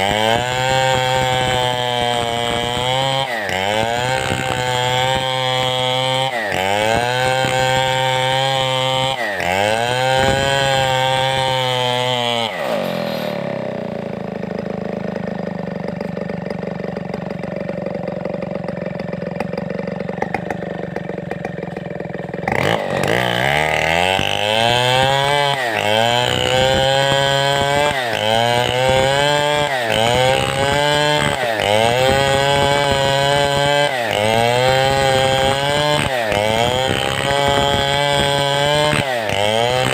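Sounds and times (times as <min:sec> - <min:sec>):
chainsaw cutting timber: 0:00.0 - 0:39.9.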